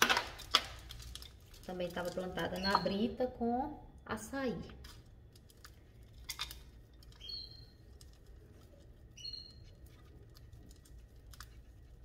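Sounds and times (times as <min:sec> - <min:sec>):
faint steady hum: 0:00.0 - 0:12.0
gravel ticking in clay pot: 0:00.0 - 0:12.0
small bird chirps: 0:02.4 - 0:03.2, 0:07.1 - 0:08.0, 0:09.1 - 0:09.9.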